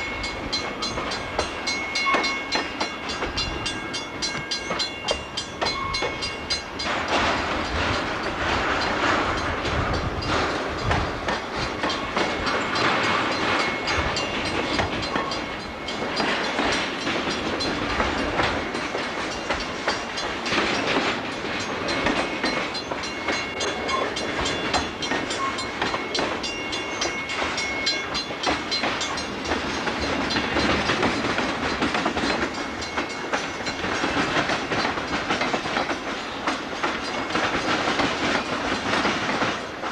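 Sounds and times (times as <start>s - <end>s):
train wheels clattering over crossing: 0.0s - 39.9s.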